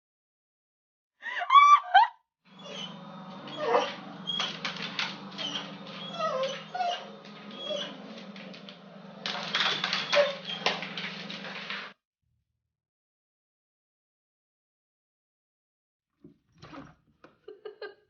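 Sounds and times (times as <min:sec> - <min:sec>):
pet whining: 0:02.5 - 0:11.9.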